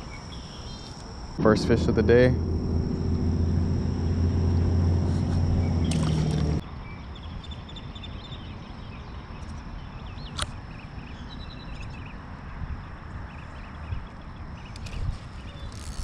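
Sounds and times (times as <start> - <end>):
loud low motor hum: 1.4 - 6.6.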